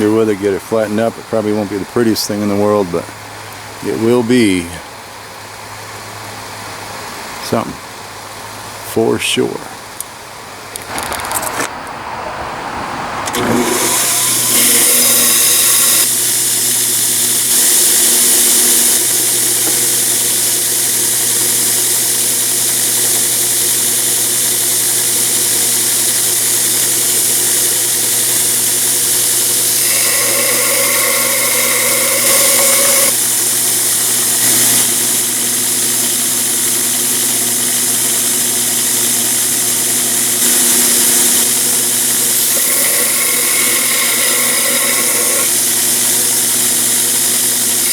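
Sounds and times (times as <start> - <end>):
grinder grinding steel: 13.3 - 47.9
hiss of grinding: 13.3 - 47.9.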